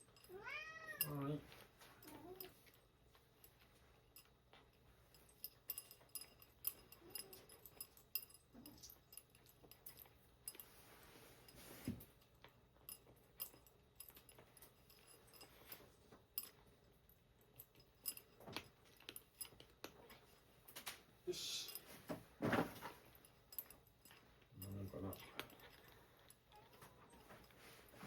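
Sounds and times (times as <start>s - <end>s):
cat litter being scooped: 10.7s - 12.1s.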